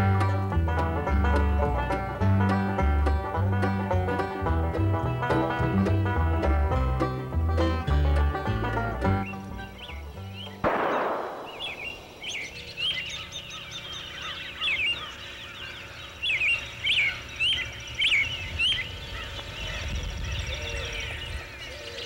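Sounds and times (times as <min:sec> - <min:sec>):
birds chirping: 0:03.1 - 0:22.0
sharp crash: 0:10.7 - 0:12.5.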